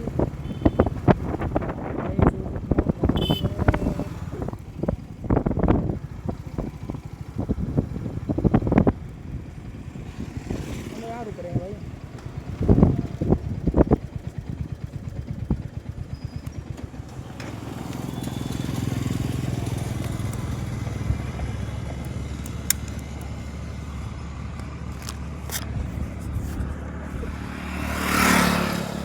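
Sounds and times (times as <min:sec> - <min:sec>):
motorcycle engine idling: 0:00.0 - 0:29.0
sharp clicks: 0:22.0 - 0:23.4.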